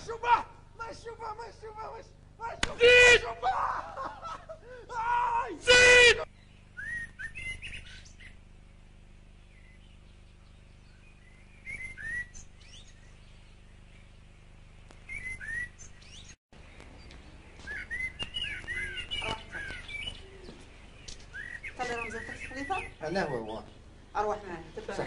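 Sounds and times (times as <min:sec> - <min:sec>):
faint low hum: 0:00.0 - 0:25.0
small birds chirping: 0:04.1 - 0:25.0.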